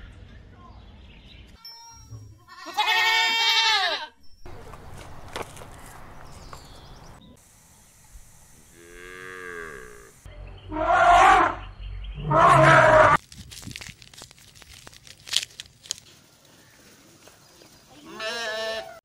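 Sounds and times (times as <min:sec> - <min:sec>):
cow mooing: 0:08.7 - 0:11.6, 0:12.2 - 0:13.2.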